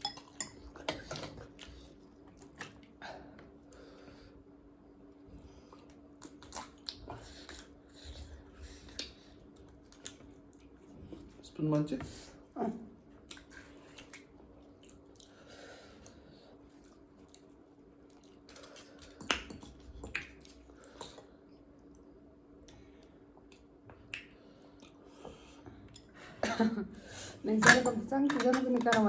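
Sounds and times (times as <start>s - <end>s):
chewing and mouth smacks: 5.7s - 7.8s, 8.8s - 10.9s, 13.2s - 15.4s, 16.7s - 22.0s, 23.4s - 25.1s.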